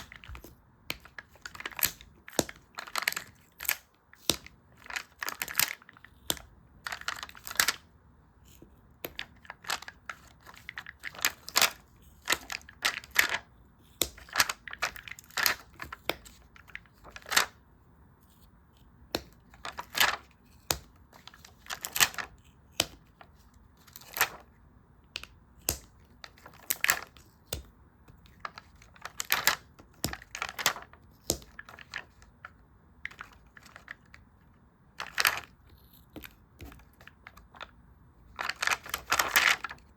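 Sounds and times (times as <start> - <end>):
paper crinkling: 0.0 - 7.9, 8.5 - 17.6, 19.4 - 22.5, 23.1 - 24.5, 28.2 - 34.2, 35.0 - 37.7, 38.3 - 39.9.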